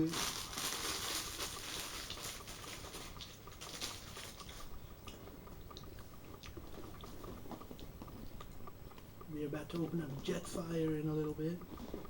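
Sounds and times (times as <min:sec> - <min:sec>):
person chewing food: 0:01.3 - 0:09.2, 0:11.6 - 0:12.0.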